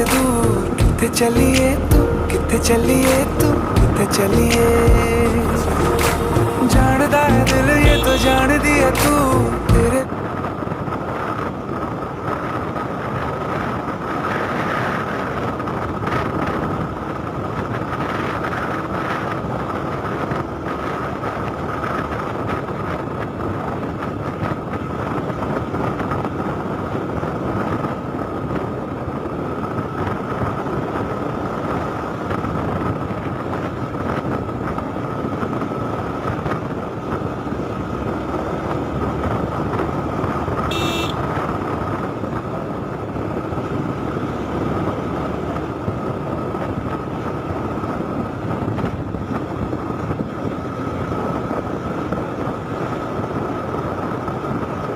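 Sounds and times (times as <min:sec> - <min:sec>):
motorcycle engine running: 0:00.0 - 0:02.1, 0:02.7 - 0:10.0, 0:37.6 - 0:52.2
steady high whine: 0:00.0 - 0:10.1
wind and road noise: 0:00.0 - 0:54.9.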